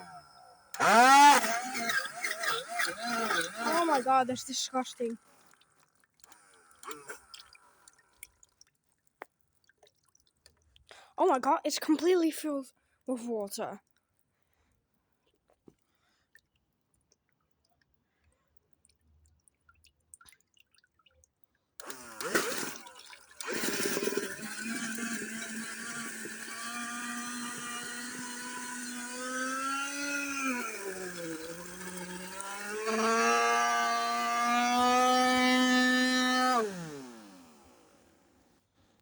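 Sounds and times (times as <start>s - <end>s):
handheld vacuum cleaner whine: 0.0s - 4.5s, 21.8s - 38.1s.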